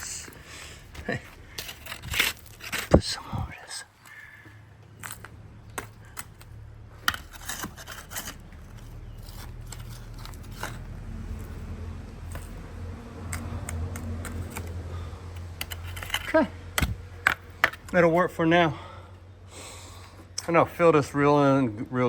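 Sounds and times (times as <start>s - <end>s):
dirt and gravel scraping: 0.0s - 22.0s.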